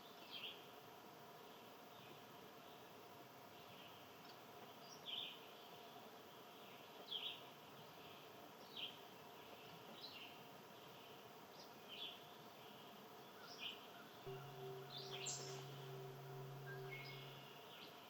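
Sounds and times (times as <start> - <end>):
faint outdoor hiss: 0.0 - 18.0
bird short call: 14.3 - 17.6.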